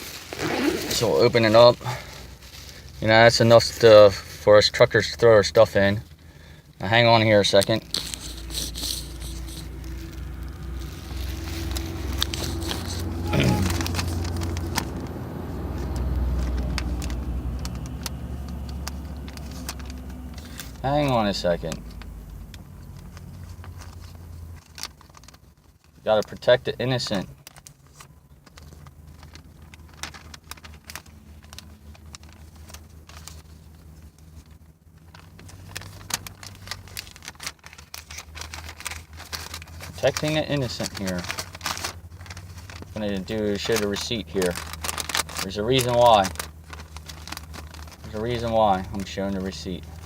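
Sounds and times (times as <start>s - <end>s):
paper rustling: 0.0s - 4.4s, 6.3s - 50.0s
vehicle engine idling: 0.0s - 50.0s
low hum: 6.1s - 21.0s, 41.3s - 42.8s, 46.4s - 48.2s.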